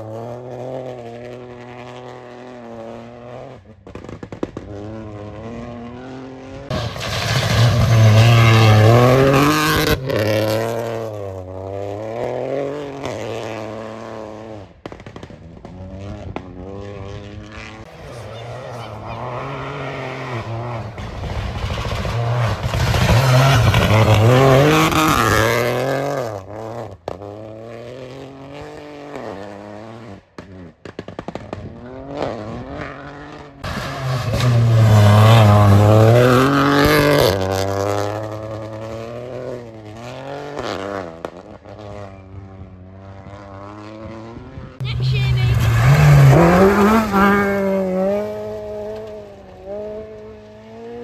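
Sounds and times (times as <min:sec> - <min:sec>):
rally car engines revving: 0:00.0 - 0:30.8, 0:31.4 - 0:51.0
sharp engine cracks: 0:06.7 - 0:09.9.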